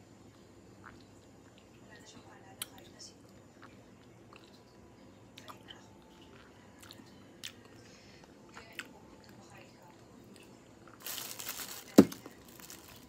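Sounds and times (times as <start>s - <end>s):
person chewing fruit: 0.2s - 1.9s, 2.6s - 9.4s.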